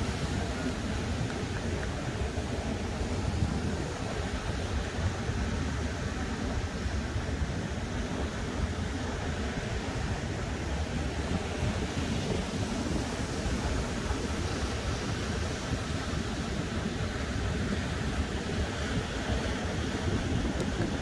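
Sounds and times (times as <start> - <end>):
wind buffeting microphone: 9.8 - 21.0.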